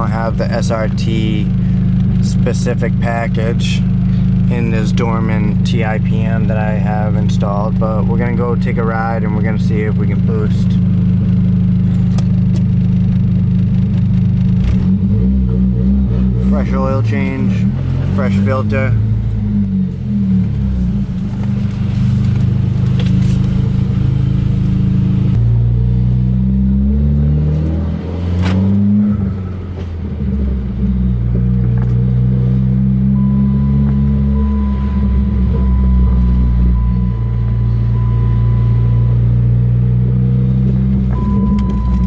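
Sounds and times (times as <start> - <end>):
car engine revving through gears: 0.0 - 42.0.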